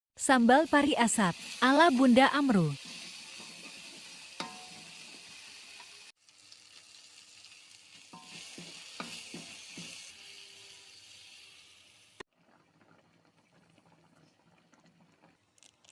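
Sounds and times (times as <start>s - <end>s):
food sizzling in a pan: 0.3s - 15.9s
spatula scraping and knocking: 8.2s - 10.1s.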